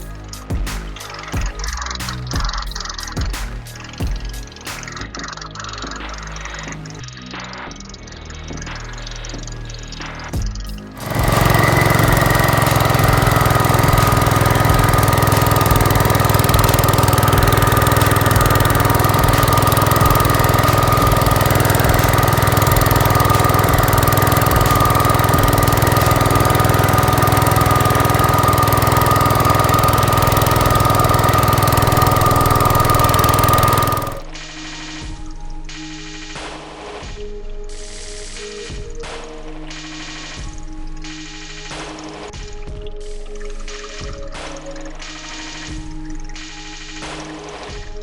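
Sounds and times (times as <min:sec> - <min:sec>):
snow blower whine: 0:11.0 - 0:34.2
tractor engine running: 0:11.0 - 0:34.2.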